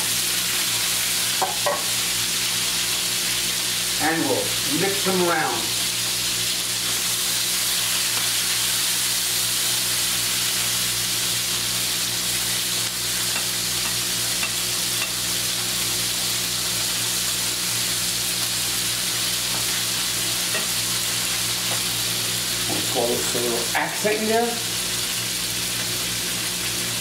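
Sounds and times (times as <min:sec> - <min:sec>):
food sizzling in frying pan: 0:00.0 - 0:27.0
tongs clicking against pan: 0:13.3 - 0:15.2.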